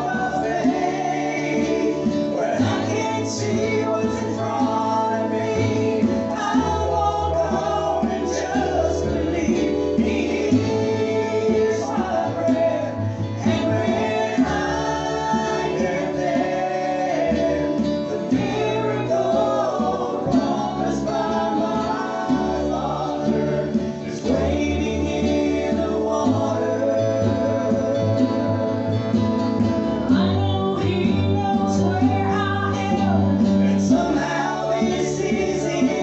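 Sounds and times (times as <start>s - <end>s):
acoustic guitar: 0.0s - 36.0s
gospel group singing in harmony: 0.0s - 36.0s.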